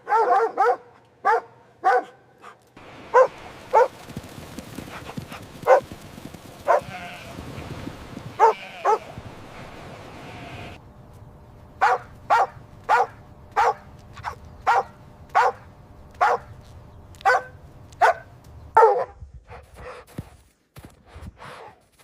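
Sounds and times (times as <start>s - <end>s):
dog barking: 0.0s - 4.0s, 5.6s - 5.9s, 6.7s - 6.9s, 8.4s - 9.1s, 11.8s - 16.5s, 17.2s - 19.2s.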